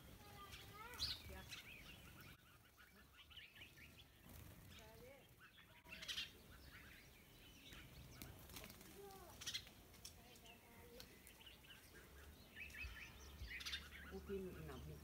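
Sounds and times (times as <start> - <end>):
birds chirping faintly: 0.0 - 15.0.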